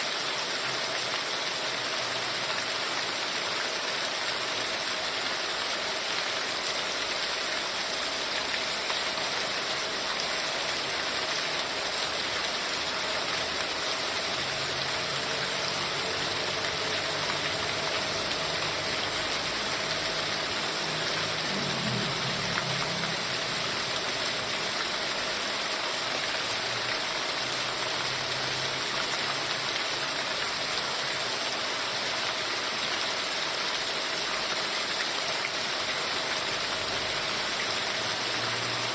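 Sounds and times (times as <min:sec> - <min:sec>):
heavy rain hissing: 0:00.0 - 0:38.9.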